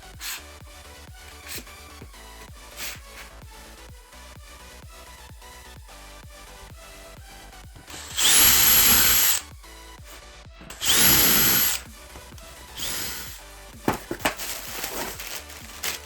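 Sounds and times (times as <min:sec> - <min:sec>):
background music with beat: 0:00.0 - 0:16.0
power tool whine: 0:01.3 - 0:01.7, 0:07.9 - 0:09.4, 0:10.7 - 0:16.0.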